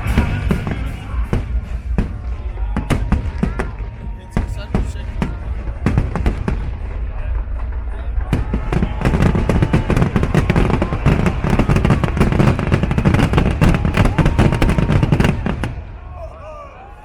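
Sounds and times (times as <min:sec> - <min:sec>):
fireworks bangs and crackles: 0:00.0 - 0:16.3.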